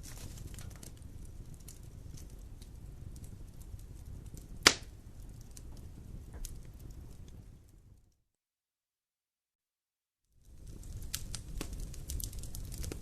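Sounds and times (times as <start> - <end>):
fire crackling in fireplace: 0.0 - 8.2, 10.3 - 13.0
loud sharp pop of fire: 4.6 - 5.0.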